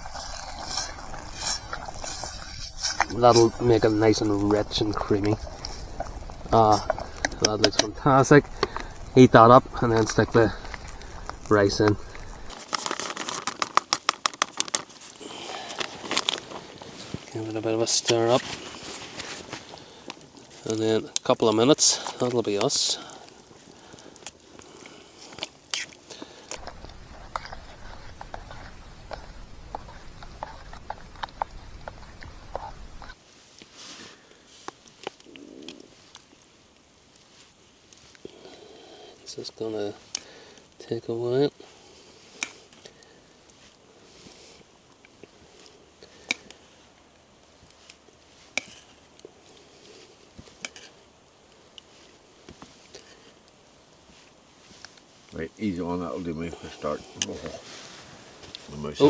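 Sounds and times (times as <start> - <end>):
faint ticks: 0.0 - 12.5, 25.7 - 33.2
steady low rumble: 0.0 - 12.5
campfire crackling and popping: 0.0 - 33.7, 34.3 - 59.0.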